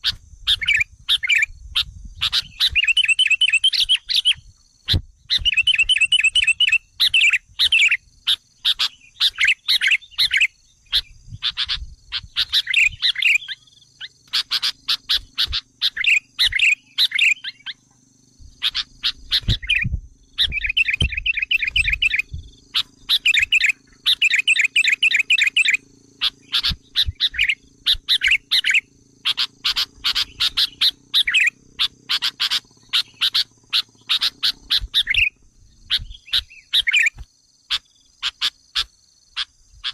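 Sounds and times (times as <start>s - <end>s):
birds chattering chirps: 0.0s - 39.9s.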